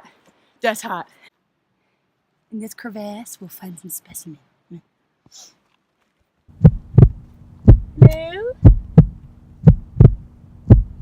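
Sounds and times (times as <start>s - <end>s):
heartbeat thumps: 6.5s - 11.0s
steady low hum: 6.5s - 11.0s.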